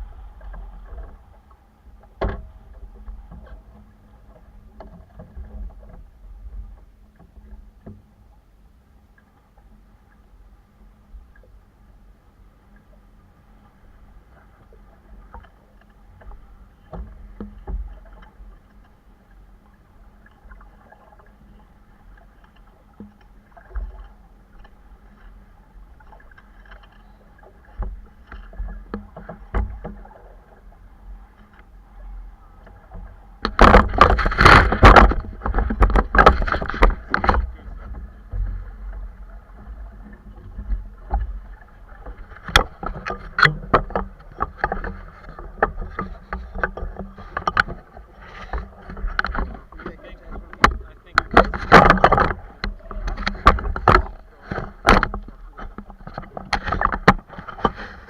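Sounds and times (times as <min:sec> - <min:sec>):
knocks aboard boat: 0:00.0 - 0:08.2, 0:15.3 - 0:19.0, 0:26.1 - 0:30.4, 0:32.6 - 0:58.0.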